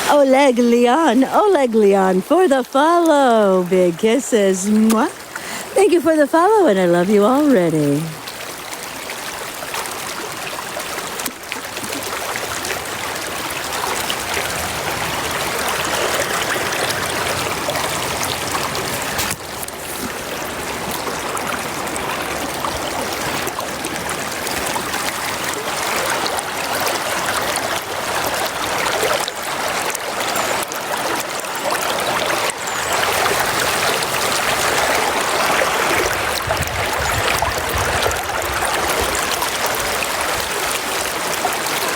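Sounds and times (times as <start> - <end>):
river water rushing: 2.8 - 41.9.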